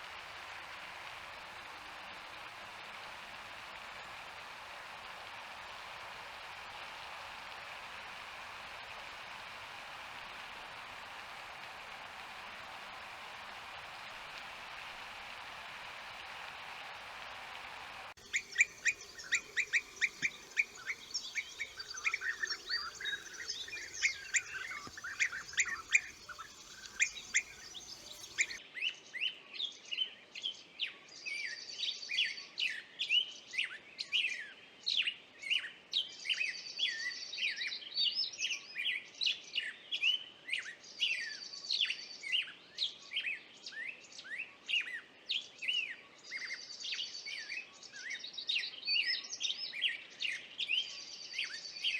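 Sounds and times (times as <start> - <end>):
birds chirping and singing: 18.2 - 28.6
high bird trill: 18.2 - 28.6.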